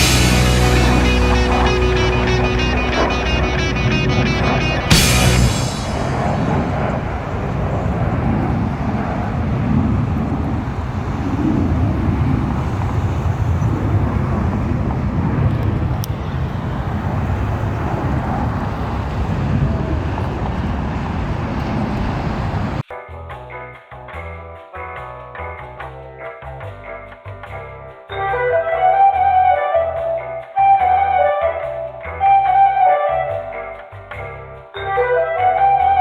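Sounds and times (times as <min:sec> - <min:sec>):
low outdoor rumbling: 0:00.0 - 0:22.8.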